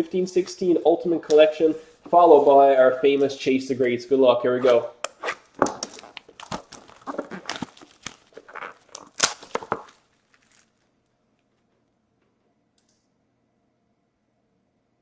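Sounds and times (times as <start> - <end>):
packaging tearing and crinkling: 5.2 - 10.9.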